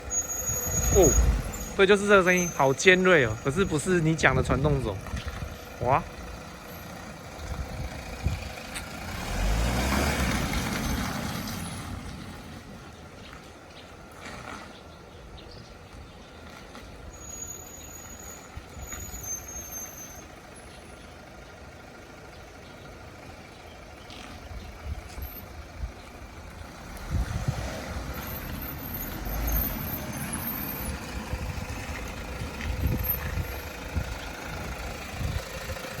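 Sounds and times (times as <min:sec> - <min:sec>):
high-pitched brake squeal: 0:00.0 - 0:04.4, 0:17.1 - 0:20.3
car running rumble: 0:00.0 - 0:36.0.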